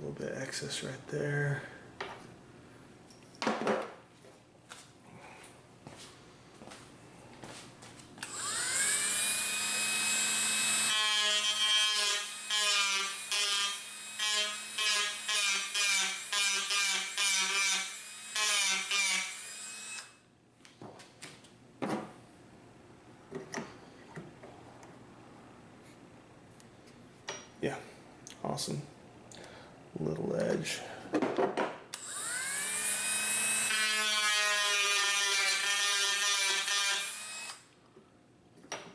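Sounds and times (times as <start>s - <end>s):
rotary tool grinding wood: 8.2s - 20.1s.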